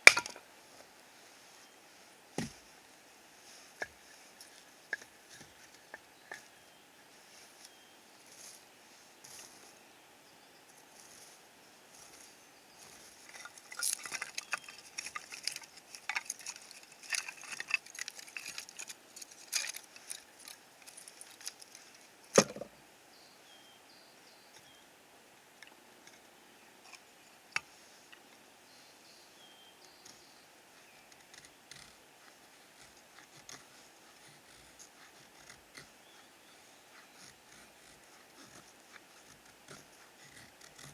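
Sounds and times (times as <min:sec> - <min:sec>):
objects clicking and knocking: 0:00.1 - 0:00.4, 0:13.3 - 0:22.7.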